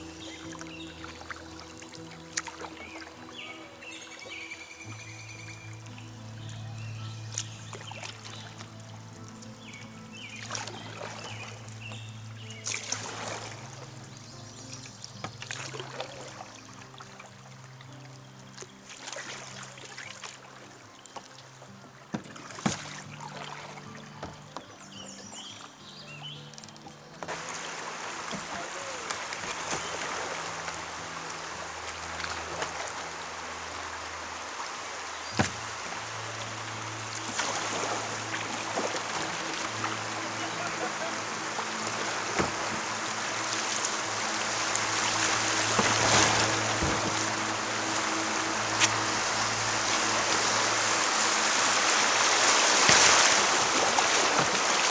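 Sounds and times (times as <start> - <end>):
kayak paddle splashing in water: 0.0 - 54.9
low background music tones: 0.0 - 54.9
small splashes and clicks: 10.4 - 13.6, 14.7 - 21.5, 37.1 - 50.6.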